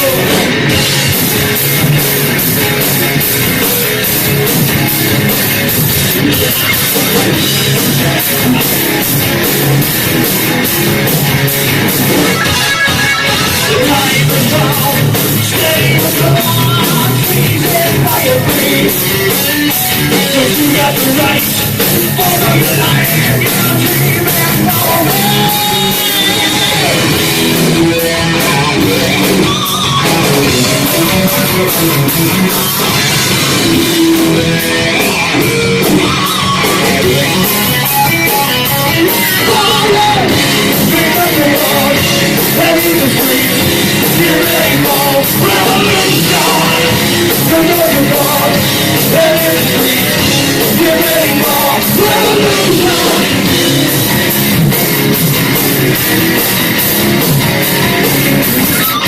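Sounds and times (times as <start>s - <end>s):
person singing: 0.0s - 0.5s, 12.2s - 27.2s, 28.1s - 34.6s, 35.8s - 54.0s
drum kit: 0.0s - 59.0s
electric guitars: 0.0s - 59.0s.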